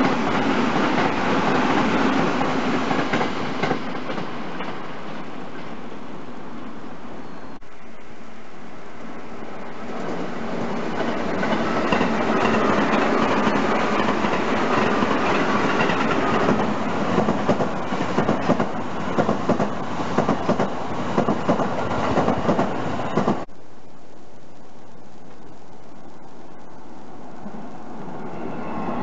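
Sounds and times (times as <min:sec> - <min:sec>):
electric train passing: 0:00.0 - 0:23.5, 0:25.5 - 0:29.0
wheels clacking over rail joints: 0:10.0 - 0:23.5.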